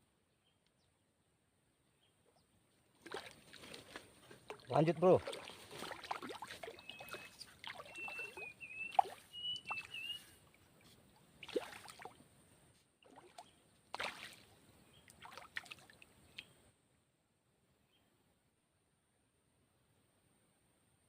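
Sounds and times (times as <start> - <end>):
water splashing and sloshing: 2.9 - 12.3, 13.0 - 16.5.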